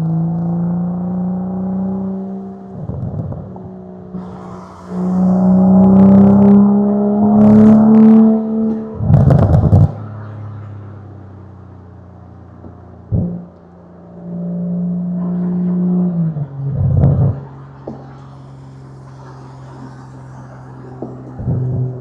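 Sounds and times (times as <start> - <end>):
car exhaust accelerating: 0.0 - 22.0
exhaust crackling and popping: 2.1 - 14.1, 14.7 - 22.0.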